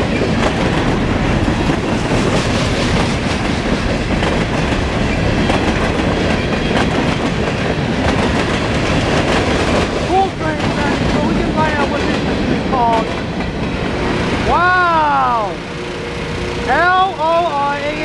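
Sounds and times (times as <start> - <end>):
clacking over rail joints: 0.0 - 14.1
train wheels rumbling on rail: 0.0 - 18.0.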